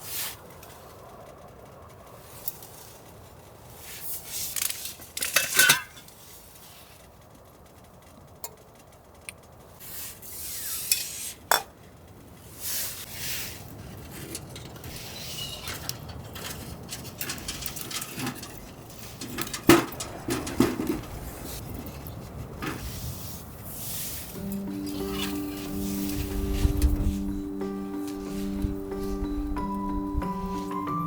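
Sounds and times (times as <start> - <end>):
pots and cutlery clattering: 5.2 - 6.1, 14.0 - 21.3.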